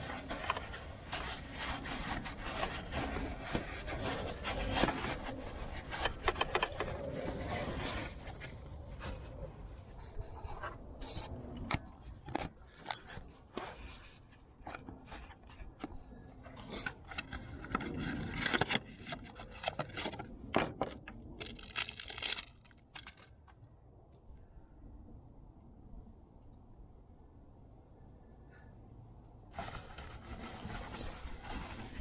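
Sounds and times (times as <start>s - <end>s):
objects clicking and knocking: 16.6s - 23.6s
objects scraping: 29.6s - 32.0s.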